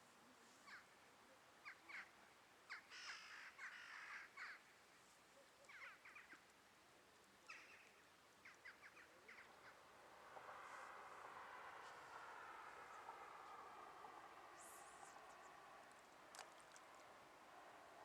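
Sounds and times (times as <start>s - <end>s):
faint harsh bird calls: 2.7s - 4.7s.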